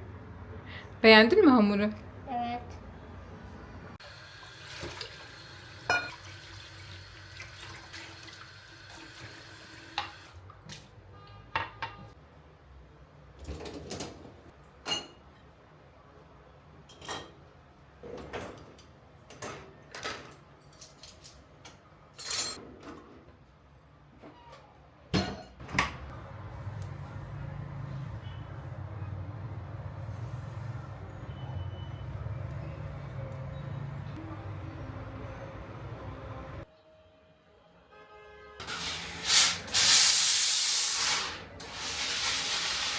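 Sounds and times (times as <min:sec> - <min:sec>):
kitchen tap running: 0:04.0 - 0:10.3
dishes and utensils clinking: 0:05.9 - 0:06.2.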